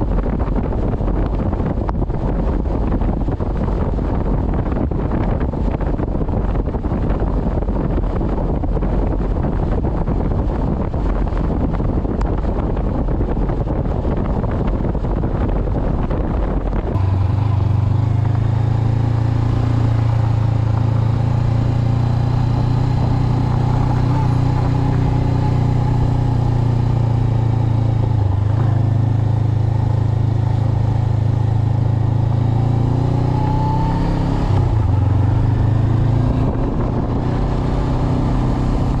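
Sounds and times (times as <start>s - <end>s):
wind buffeting microphone: 0.0s - 39.0s
motorcycle engine droning: 14.6s - 39.0s.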